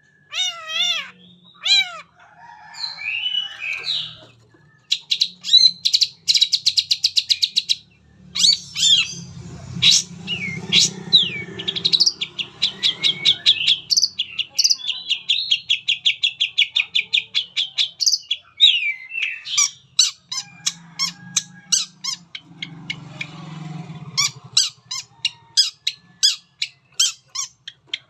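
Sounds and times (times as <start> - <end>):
shrike singing: 2.7 - 23.1.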